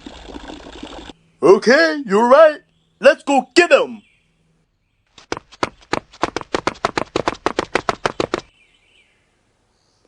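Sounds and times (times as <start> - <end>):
fast run of sharp knocks: 5.1 - 8.5.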